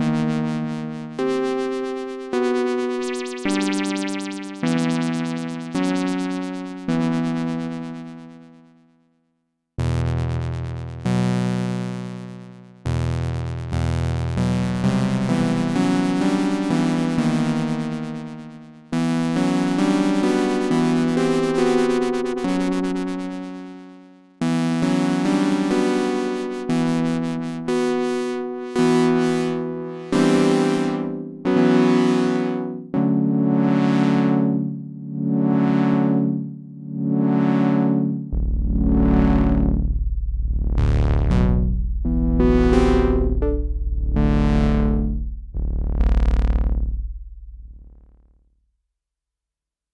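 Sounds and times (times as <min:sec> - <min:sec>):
synthesizer chords: 0:00.0 - 0:08.5, 0:14.3 - 0:23.4, 0:24.5 - 0:48.2.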